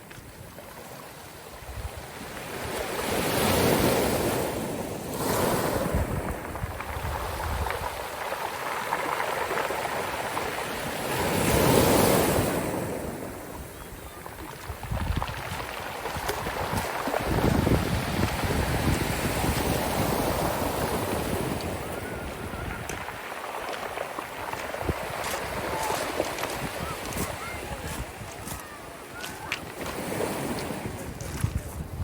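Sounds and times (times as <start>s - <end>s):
waves breaking on shore: 0.0s - 32.0s
wind buffeting microphone: 5.2s - 32.0s.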